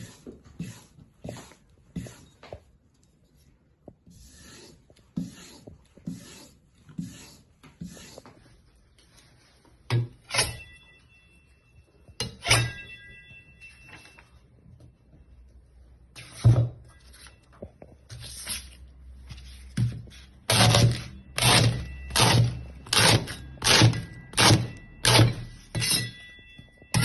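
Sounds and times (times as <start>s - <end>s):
metal knocks with ringing blade: 12.2s - 13.1s, 22.1s - 27.0s.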